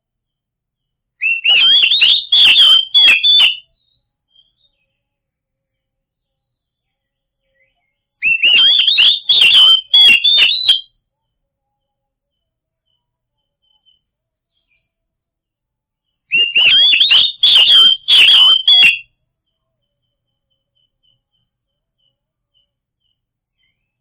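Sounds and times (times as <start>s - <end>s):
bird whistled notes and clicks: 1.2s - 4.9s, 7.6s - 10.9s, 16.3s - 19.1s.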